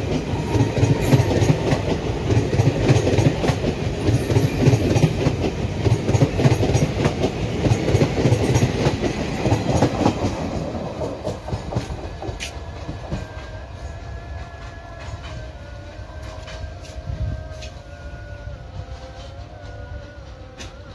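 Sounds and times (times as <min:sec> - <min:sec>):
train wheels rumbling and clattering: 0:00.0 - 0:20.9.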